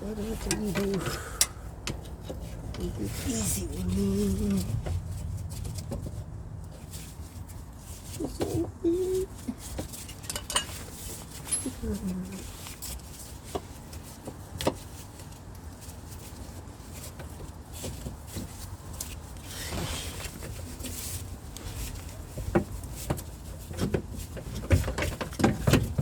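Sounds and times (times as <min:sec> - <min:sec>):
low background rumble: 0:00.0 - 0:09.8
metal clicks and knocks from tools: 0:10.1 - 0:10.8.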